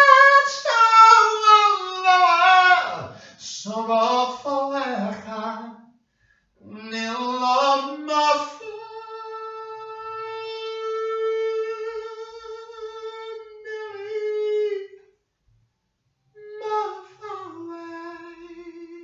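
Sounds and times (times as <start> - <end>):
person singing solo: 0.0 - 5.5, 6.7 - 14.9.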